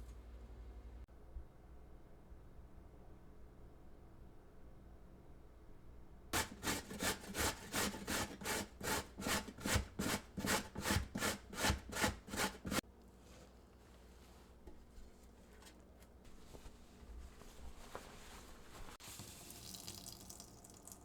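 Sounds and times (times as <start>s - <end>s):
grater rasping strokes: 6.4s - 12.8s.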